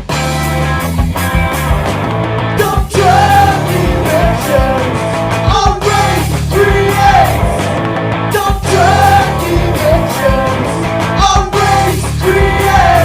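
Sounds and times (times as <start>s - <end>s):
punk rock band playing: 0.0s - 13.0s
person singing: 2.6s - 7.5s, 8.3s - 13.0s.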